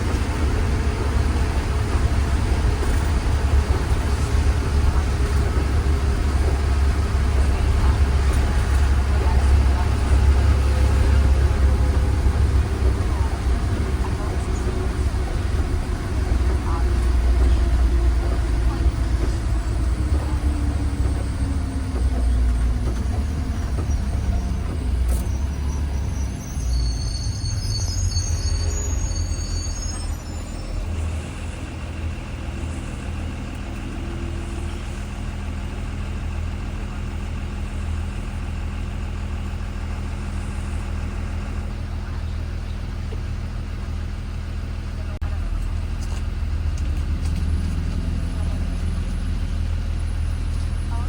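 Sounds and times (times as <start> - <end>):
bus engine rumble: 0.0 - 51.0
road noise: 0.0 - 51.0
brief high squeal: 25.1 - 31.2.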